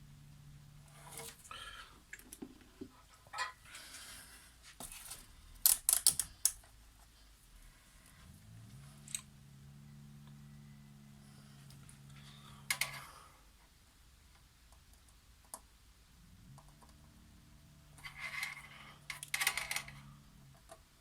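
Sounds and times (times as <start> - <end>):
low steady hum: 0.0 - 21.0
small parts clicking and rattling: 4.8 - 6.7, 11.7 - 13.1, 18.0 - 20.9.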